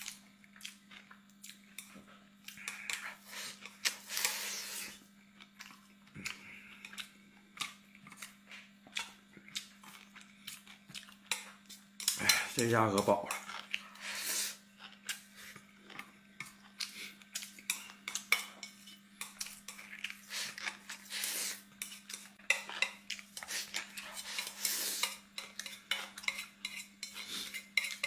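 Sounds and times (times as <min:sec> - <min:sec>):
utensils clinking on a plate: 0:21.8 - 0:28.0.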